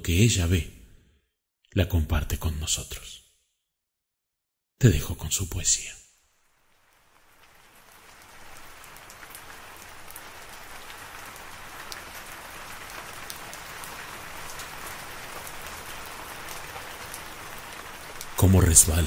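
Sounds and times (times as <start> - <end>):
steady rain: 5.6 - 19.0.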